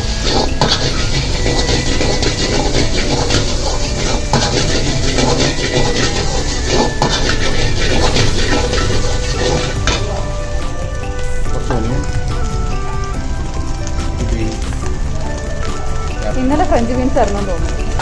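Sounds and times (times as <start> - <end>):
spatula scraping metal pan: 0.0 - 10.1
food sizzling in a hot pan: 0.0 - 18.0.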